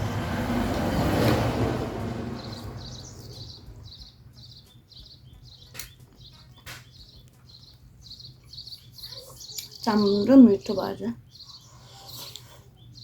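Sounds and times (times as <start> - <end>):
loud rushing noise: 0.0 - 3.2
high chirping: 2.2 - 13.0.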